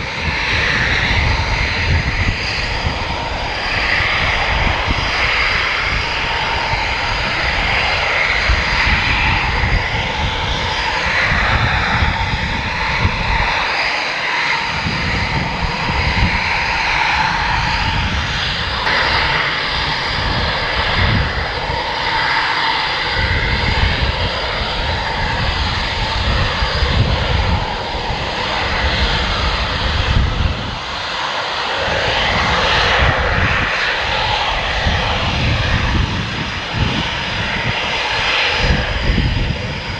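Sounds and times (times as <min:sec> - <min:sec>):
fighter jet engines roaring: 0:00.0 - 0:39.9.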